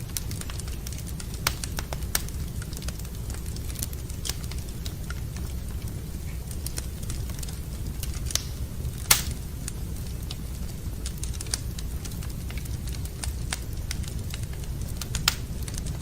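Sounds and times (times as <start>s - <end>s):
low fire rumble: 0.0s - 16.0s
wood fire crackling: 0.0s - 16.0s
loud fire pop: 8.4s - 9.4s.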